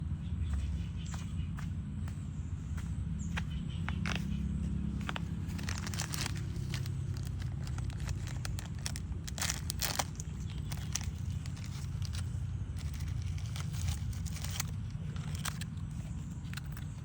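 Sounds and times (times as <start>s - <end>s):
crunchy eating bites: 4.0s - 17.0s.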